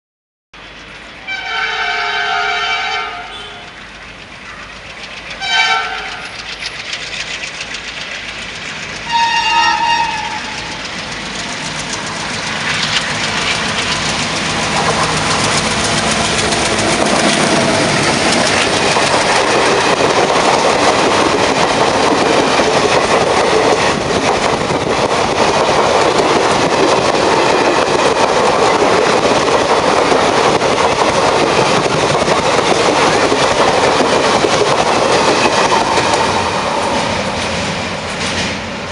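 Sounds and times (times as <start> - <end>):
train wheels rumbling and clattering: 0.6 - 38.9
diesel locomotive horn blasts: 1.2 - 3.8, 5.4 - 6.3, 9.1 - 10.7.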